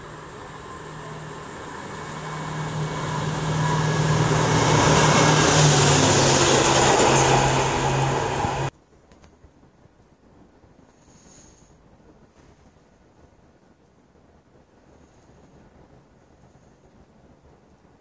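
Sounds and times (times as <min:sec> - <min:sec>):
locomotive engine hum: 0:00.0 - 0:08.7
train wheel and rail noise: 0:00.0 - 0:08.8.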